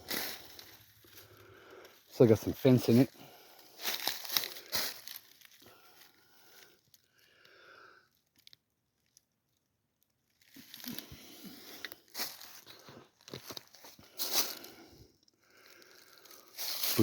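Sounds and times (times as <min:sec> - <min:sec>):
footsteps crunching dry leaves: 0:00.0 - 0:01.3, 0:02.4 - 0:06.1, 0:10.5 - 0:14.9, 0:15.6 - 0:17.0.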